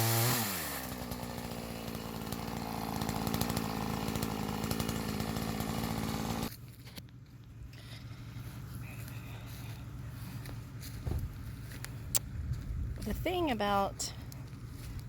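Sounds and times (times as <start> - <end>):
chainsaw running: 0.0 - 7.0.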